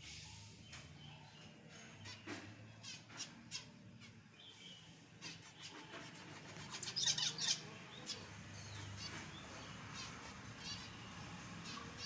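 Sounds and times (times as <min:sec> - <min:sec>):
finches chirping: 0:06.6 - 0:12.0.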